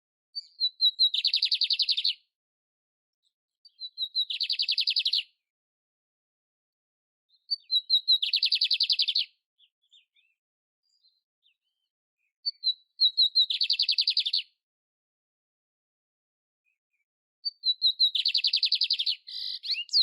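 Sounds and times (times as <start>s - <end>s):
canary singing trills: 0.4s - 2.2s, 3.7s - 5.4s, 7.3s - 14.6s, 17.4s - 20.0s.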